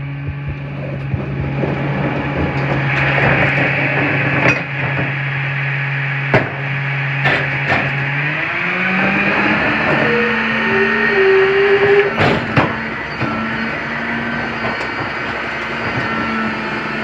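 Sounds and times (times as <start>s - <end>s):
garbage truck engine humming: 0.0s - 17.0s
metal clanks and bangs: 6.3s - 17.0s.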